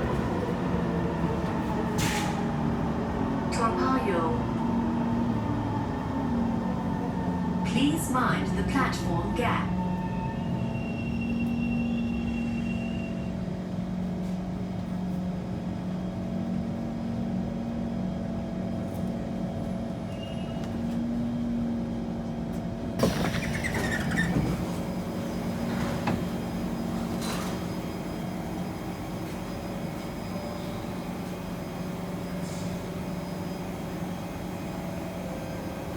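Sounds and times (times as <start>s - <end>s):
metro train equipment hum: 0.0s - 35.9s
high squeal: 23.0s - 24.6s
rush of train noise: 23.0s - 35.9s.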